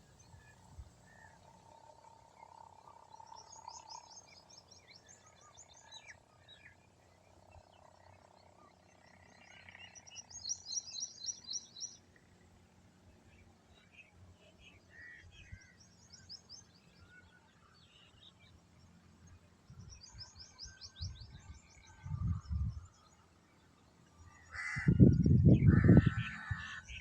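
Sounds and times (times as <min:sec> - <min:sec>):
small birds chirping: 0:07.5 - 0:12.2.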